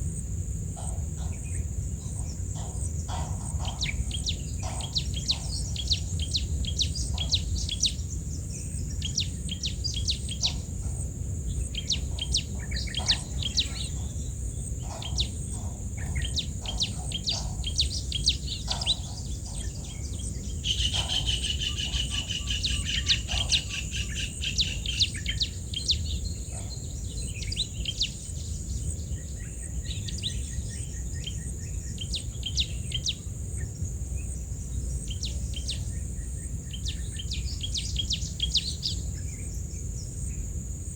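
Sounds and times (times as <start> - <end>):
birds chirping: 0.6 - 40.5
trilled bird call: 0.8 - 8.1, 9.0 - 26.7.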